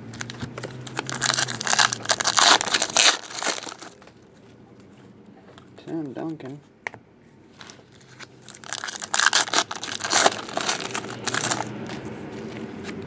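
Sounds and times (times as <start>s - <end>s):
foil wrappers crinkling: 0.1s - 4.0s, 8.1s - 11.7s.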